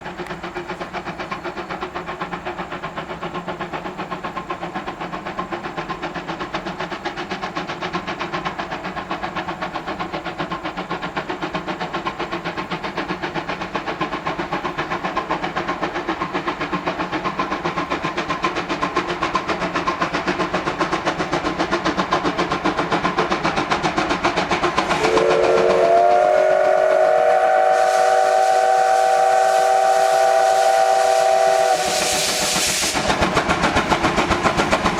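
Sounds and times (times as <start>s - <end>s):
steam locomotive exhaust beating: 0.0s - 34.9s
steam whistle: 24.9s - 33.0s.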